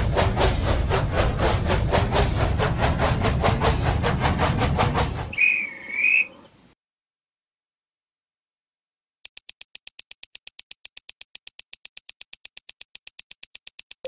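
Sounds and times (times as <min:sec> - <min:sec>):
rapid even ticking: 0:09.3 - 0:14.0.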